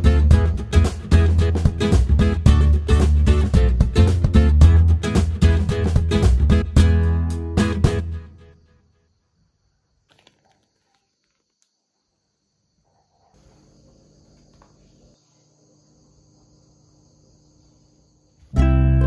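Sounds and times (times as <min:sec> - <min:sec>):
faint steady hum: 0:11.6 - 0:19.0.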